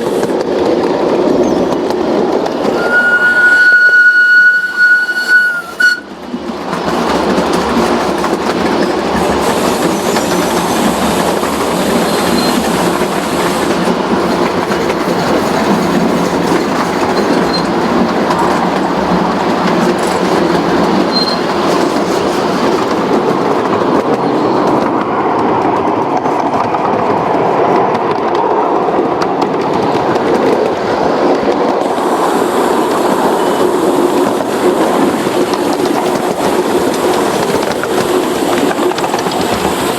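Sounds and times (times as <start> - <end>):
clickety-clack of wheels on rail: 0.0 - 39.9
train rumbling along track: 0.0 - 39.9.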